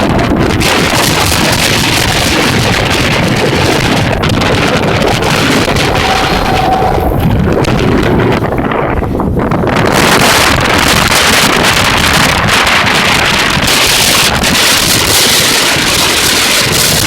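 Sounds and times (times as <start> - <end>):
wind buffeting microphone: 0.0 - 17.0
freight train rumbling past: 4.0 - 12.8.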